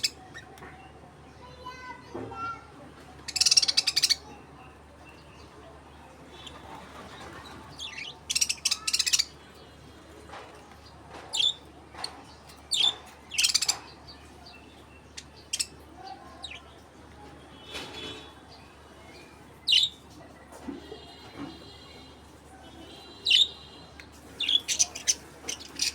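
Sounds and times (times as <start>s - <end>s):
parrots chirping and squawking: 3.2s - 4.3s, 7.4s - 9.4s, 11.3s - 14.0s, 15.4s - 15.7s, 23.2s - 23.6s, 24.3s - 25.9s.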